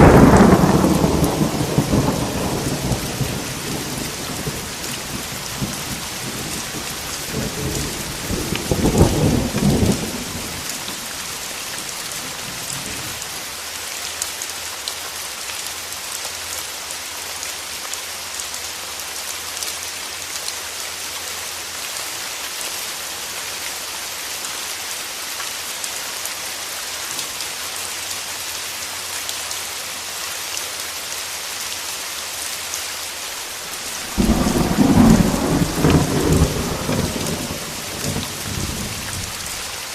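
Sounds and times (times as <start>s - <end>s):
thunder rumbling: 0.0s - 13.2s, 33.7s - 39.7s
heavy rain hissing: 0.0s - 19.1s, 19.8s - 39.9s.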